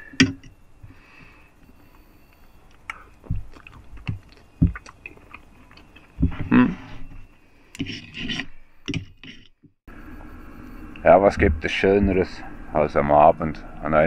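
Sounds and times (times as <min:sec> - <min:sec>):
person chewing: 0:02.3 - 0:06.8.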